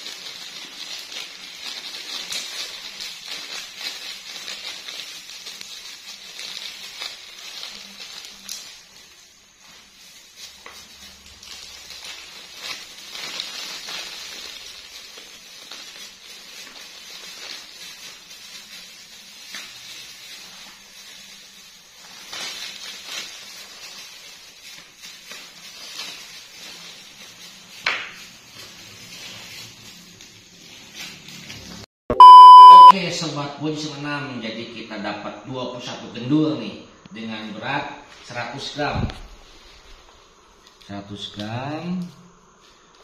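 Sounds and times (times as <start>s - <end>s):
rustling handling noise: 0.0s - 32.9s.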